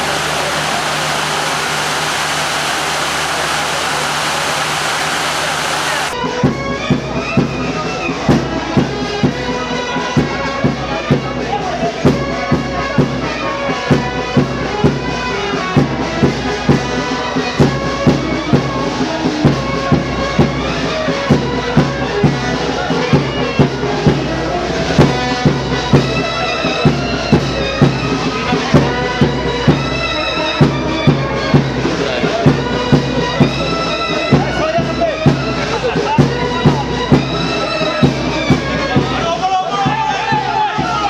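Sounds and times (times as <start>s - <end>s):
wind instruments playing a tune: 0.0s - 10.8s.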